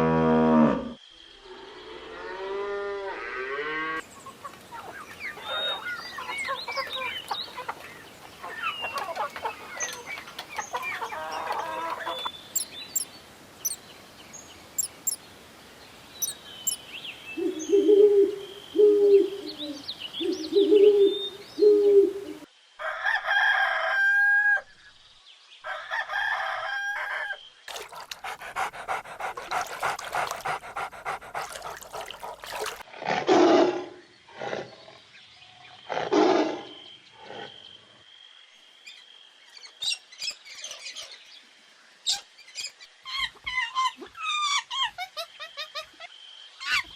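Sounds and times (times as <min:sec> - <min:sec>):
hens clucking: 0:04.3 - 0:12.3, 0:27.7 - 0:32.8
rooster crowing: 0:22.8 - 0:24.6, 0:25.7 - 0:27.4.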